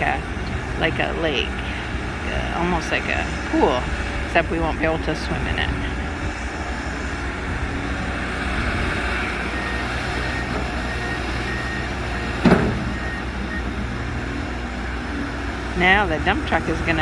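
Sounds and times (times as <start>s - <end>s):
heavy machinery engines rumbling: 0.0s - 17.0s
backup alarm beeping: 9.2s - 14.3s
sharp knock: 12.4s - 13.0s.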